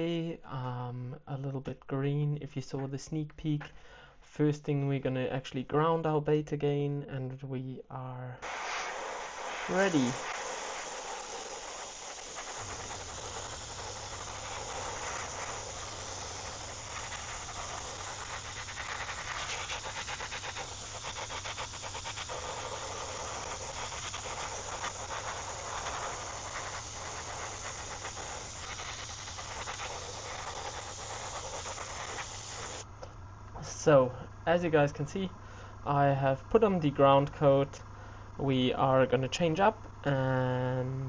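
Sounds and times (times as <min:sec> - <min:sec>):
low steady hum: 0:00.0 - 0:41.0
airbrush spraying hiss: 0:08.4 - 0:32.9.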